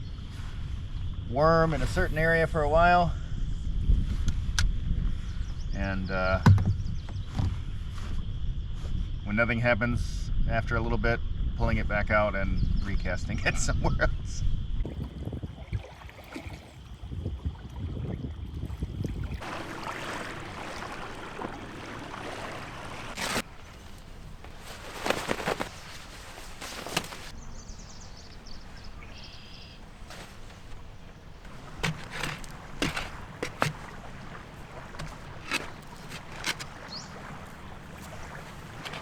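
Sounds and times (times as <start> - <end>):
wind: 0.0 - 39.0
water: 14.8 - 39.0.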